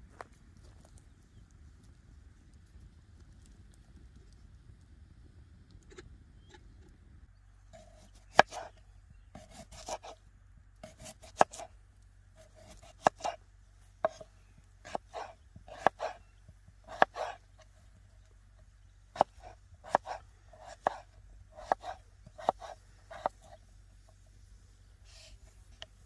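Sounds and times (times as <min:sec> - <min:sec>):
blade chopping: 0:07.8 - 0:08.7, 0:09.4 - 0:10.2, 0:10.8 - 0:11.7, 0:12.4 - 0:13.4, 0:14.0 - 0:16.2, 0:16.9 - 0:17.4, 0:19.2 - 0:23.5.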